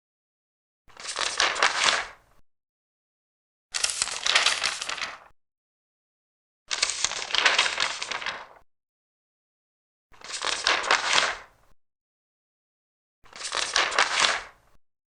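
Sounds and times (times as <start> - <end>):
paper pages turning: 0.9 - 2.2, 3.8 - 5.3, 6.7 - 8.6, 10.2 - 11.4, 13.3 - 14.6.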